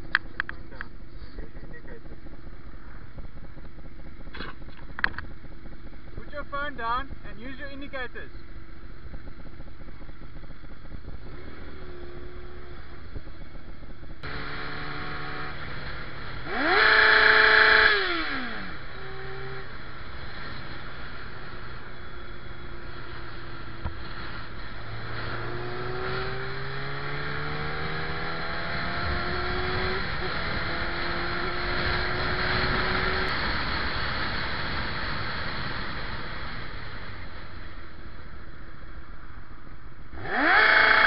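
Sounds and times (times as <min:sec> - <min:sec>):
motorcycle engine revving: 0:08.6 - 0:38.1, 0:40.1 - 0:41.0.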